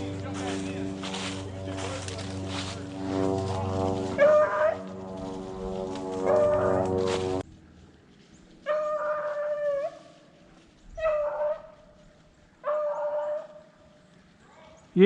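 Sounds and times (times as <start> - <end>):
loud sound cutting off: 0.0 - 7.4
hound baying: 4.2 - 4.9, 6.2 - 6.9, 8.6 - 10.1, 11.0 - 11.9, 12.6 - 13.6.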